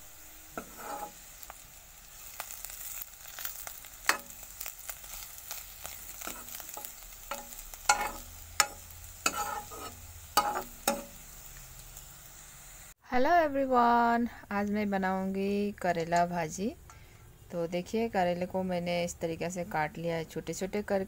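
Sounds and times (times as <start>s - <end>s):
vegetables sizzling in oil: 0.0s - 13.0s
spatula scraping a pan: 0.4s - 11.2s.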